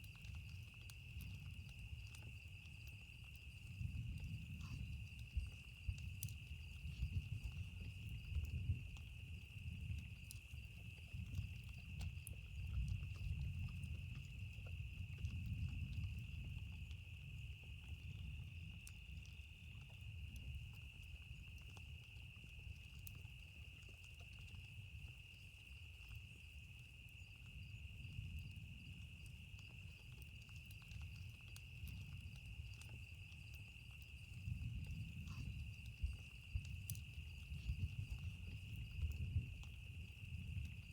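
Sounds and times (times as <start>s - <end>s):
campfire crackling and popping: 0.0s - 40.9s
insect chorus: 0.0s - 40.9s.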